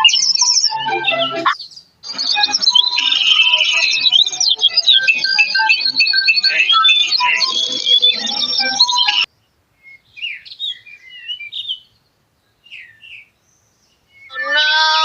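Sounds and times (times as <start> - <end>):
background music: 0.0 - 9.3
loud pitched tone: 0.0 - 9.3.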